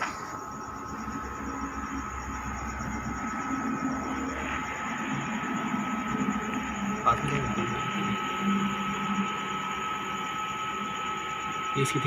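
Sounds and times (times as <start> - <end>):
high whine: 0.0 - 12.0
machine hum and low rumble: 0.0 - 12.0.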